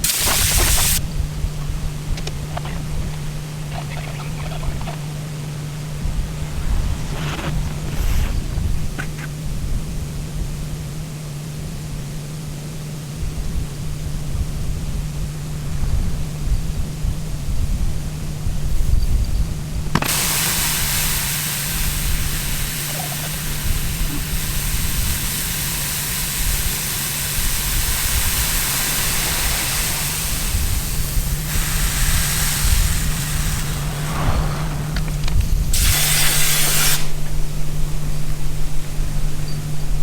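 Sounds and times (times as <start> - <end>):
truck engine idling: 0.0 - 10.6, 19.6 - 40.0
loud rushing hiss: 0.0 - 12.0, 12.7 - 40.0.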